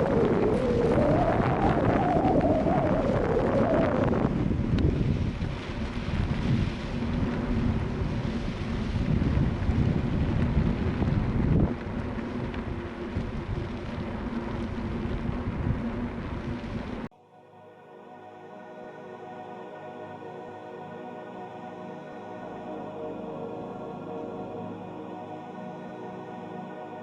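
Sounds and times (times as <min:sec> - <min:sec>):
wind buffeting microphone: 0:00.0 - 0:17.1.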